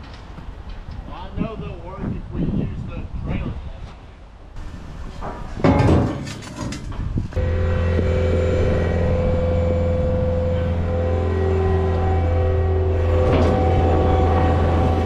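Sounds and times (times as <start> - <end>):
truck engine idling: 7.4 - 15.0.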